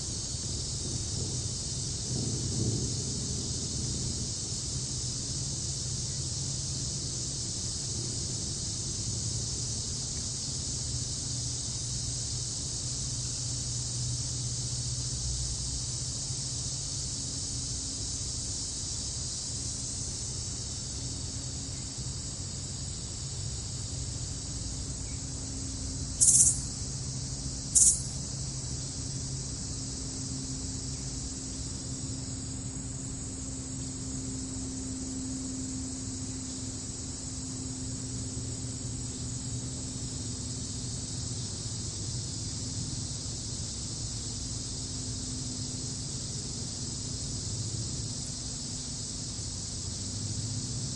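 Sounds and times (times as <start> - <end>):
crickets and insects chirring: 0.0 - 50.9
loud high-pitched chirps: 26.2 - 26.7, 27.8 - 28.2.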